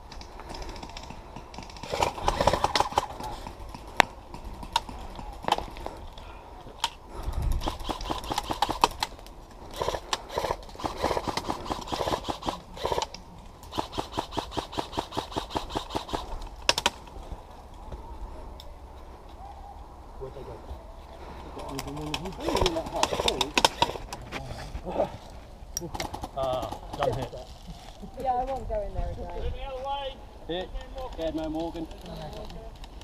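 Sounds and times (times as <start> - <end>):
airsoft rifles rapid firing: 0.5 - 5.6, 7.6 - 17.0, 22.1 - 24.1.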